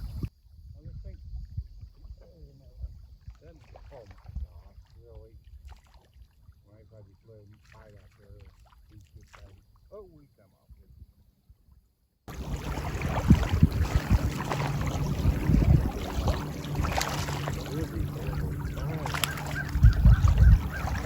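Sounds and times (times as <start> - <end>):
steady low hum: 12.3 - 21.0
faint honking bird calls: 14.0 - 21.0.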